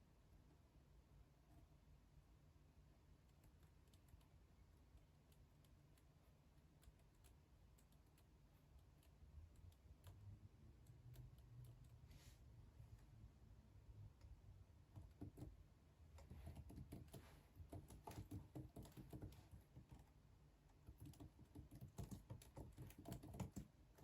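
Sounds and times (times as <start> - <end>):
low steady hum: 0.0 - 24.0
computer keyboard typing: 5.0 - 11.9, 14.9 - 24.0.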